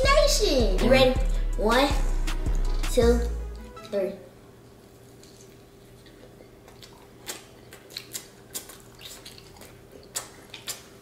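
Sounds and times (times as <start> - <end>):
chewing: 4.8 - 11.0
wet lip smacks: 5.2 - 11.0.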